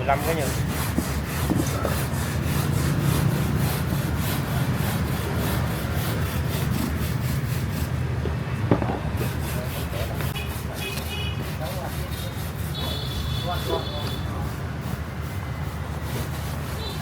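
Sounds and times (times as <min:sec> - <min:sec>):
hand tool sawing strokes: 0:00.0 - 0:08.2, 0:08.8 - 0:17.0
sharp knock: 0:08.7 - 0:09.3.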